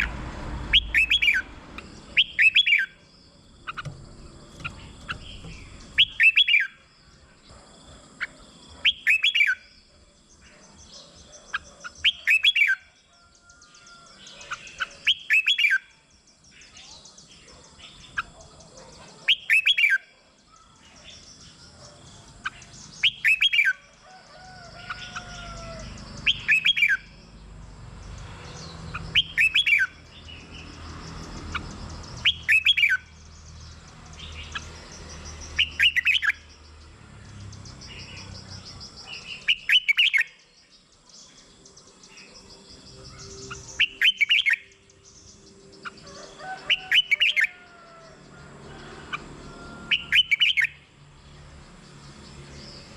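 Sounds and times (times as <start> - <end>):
bird whistled phrases: 0.7 - 1.5, 2.2 - 3.0, 6.0 - 6.8, 8.9 - 9.6, 11.5 - 12.8, 14.8 - 15.9, 19.3 - 20.0, 29.2 - 30.0, 32.2 - 33.0, 35.6 - 36.4
faint bird chirps: 0.7 - 27.3, 28.5 - 48.2.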